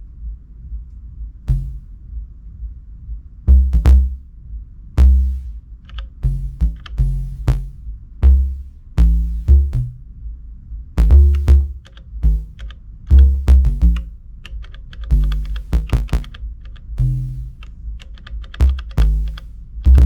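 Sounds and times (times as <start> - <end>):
deep kick drum hits: 0.0 - 14.4, 15.1 - 18.0, 18.6 - 20.0
short synth bass notes: 1.5 - 2.0, 3.5 - 4.2, 5.0 - 10.2, 11.0 - 14.3, 15.1 - 17.7, 18.6 - 20.0.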